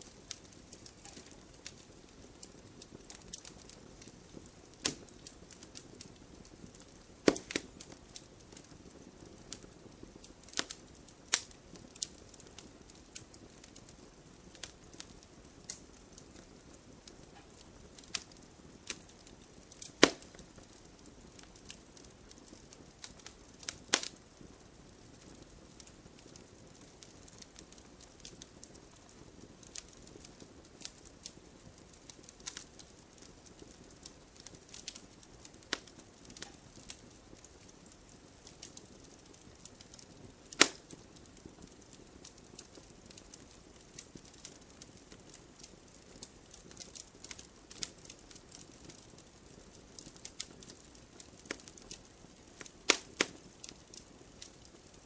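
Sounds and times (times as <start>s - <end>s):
fire crackling and popping: 0.0s - 55.0s
wood fire hissing: 0.0s - 55.0s.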